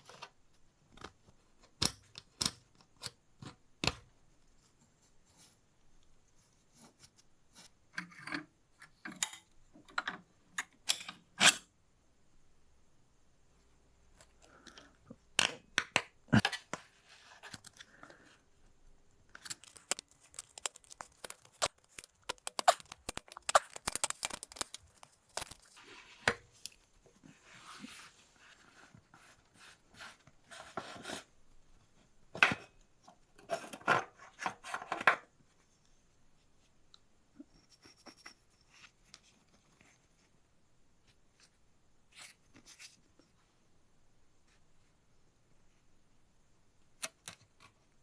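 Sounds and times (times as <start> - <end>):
tools clicking and scraping: 19.6 - 25.8.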